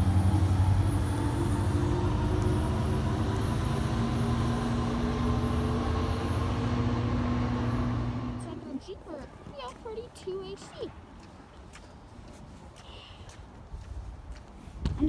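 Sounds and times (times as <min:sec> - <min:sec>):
faint whining tones: 0:00.0 - 0:08.9
train locomotive humming: 0:00.0 - 0:10.1
train rolling noise: 0:00.0 - 0:10.8.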